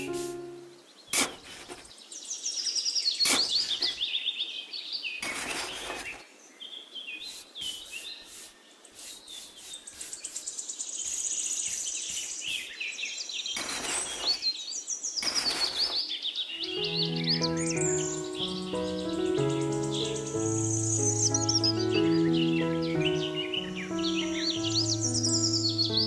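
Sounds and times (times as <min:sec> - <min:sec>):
paintbrush sweeping sand on plastic: 0:00.0 - 0:00.5, 0:01.2 - 0:01.9, 0:03.2 - 0:04.0, 0:05.2 - 0:06.2, 0:07.2 - 0:12.9, 0:13.6 - 0:14.4, 0:15.2 - 0:16.0
small birds chirping: 0:00.0 - 0:26.0.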